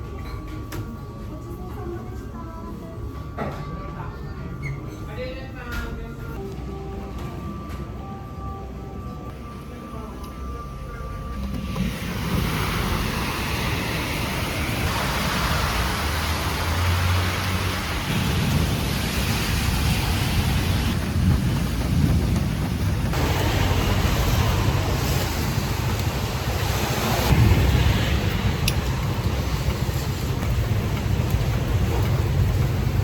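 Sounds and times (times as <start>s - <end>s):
low rumble: 10.7s - 16.6s, 17.3s - 33.0s
rain hissing on street: 11.6s - 33.0s.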